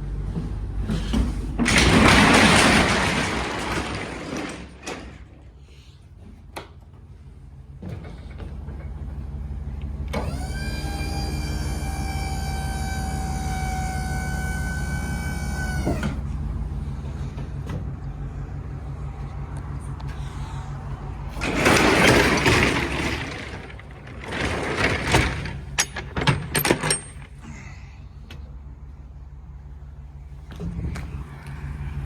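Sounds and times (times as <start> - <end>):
truck low hum: 0.0 - 32.0
loud rattling: 1.6 - 5.5, 20.2 - 27.4
metallic clicks and clanks: 21.3 - 27.4.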